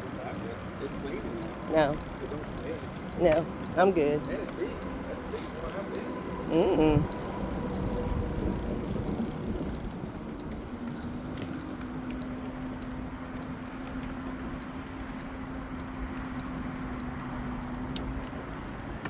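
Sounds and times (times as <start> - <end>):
electric motor hum: 0.0 - 14.6
rumble of tyres and air: 0.0 - 19.0.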